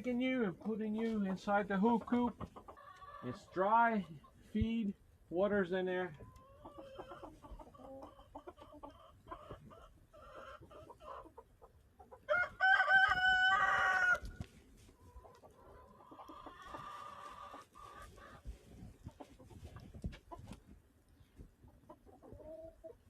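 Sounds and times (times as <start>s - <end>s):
chickens clucking: 0.0s - 4.9s, 6.0s - 23.0s
chicken drawn-out call: 6.3s - 11.5s, 12.1s - 19.6s.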